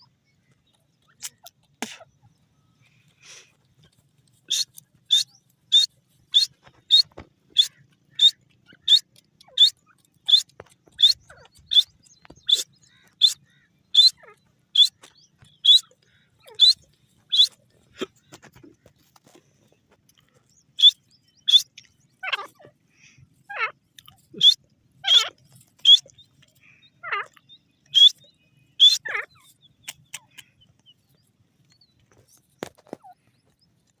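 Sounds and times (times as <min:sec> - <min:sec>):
francolin calling: 0:04.4 - 0:18.2, 0:20.8 - 0:22.6, 0:23.5 - 0:30.8.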